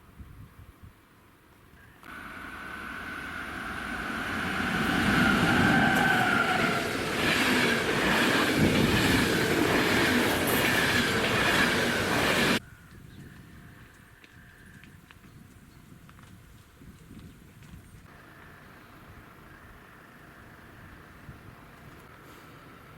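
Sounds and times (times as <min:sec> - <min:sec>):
train passing: 0:02.0 - 0:12.6
wavering whine: 0:02.0 - 0:12.6
wheels clattering over rails: 0:02.2 - 0:12.6.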